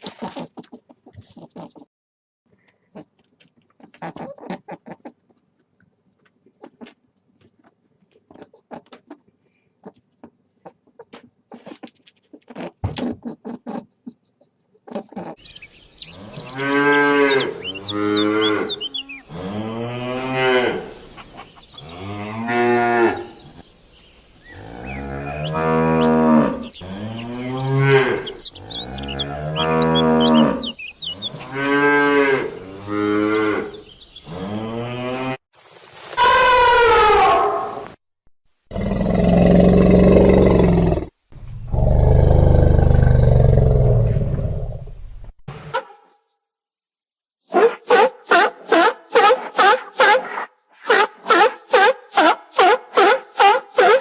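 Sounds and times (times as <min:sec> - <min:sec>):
cattle mooing: 0:16.0 - 0:20.9, 0:24.5 - 0:35.4.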